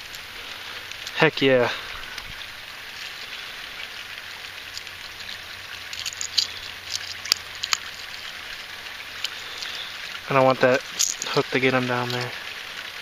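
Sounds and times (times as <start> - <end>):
steady rain pattering: 0.0 - 13.0.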